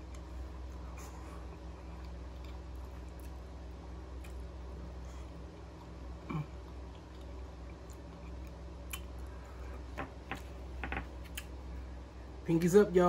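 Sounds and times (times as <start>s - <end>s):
close chewing of food: 0.0s - 9.9s
low background hum: 0.0s - 13.0s.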